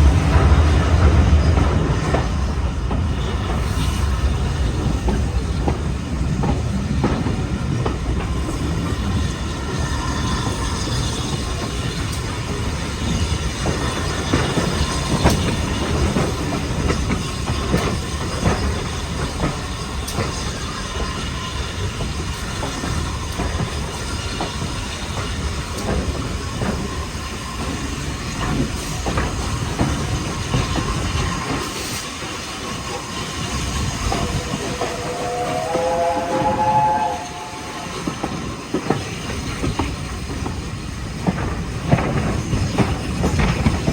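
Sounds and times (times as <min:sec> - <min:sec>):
train wheels on rails: 0:00.0 - 0:43.9
clatter over rail joints: 0:04.8 - 0:35.4, 0:38.0 - 0:43.9
faint high wheel squeal: 0:33.1 - 0:38.6.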